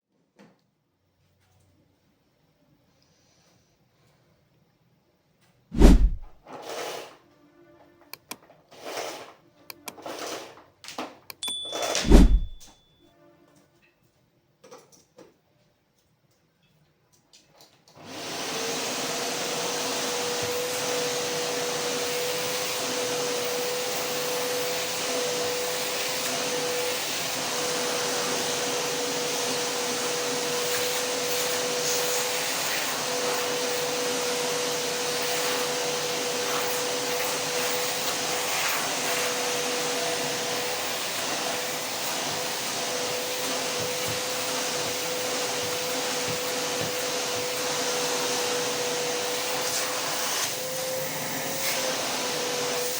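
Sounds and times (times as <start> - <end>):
vacuum cleaner running: 5.8 - 6.4, 11.8 - 12.7, 18.0 - 52.9.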